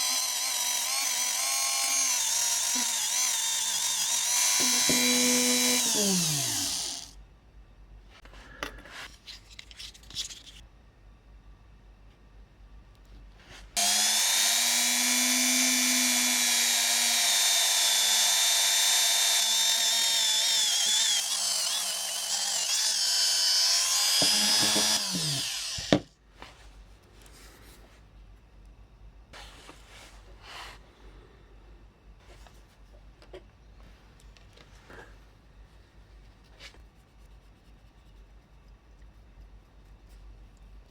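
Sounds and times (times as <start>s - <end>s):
small electric motor whining: 0.0s - 7.1s, 13.8s - 26.1s.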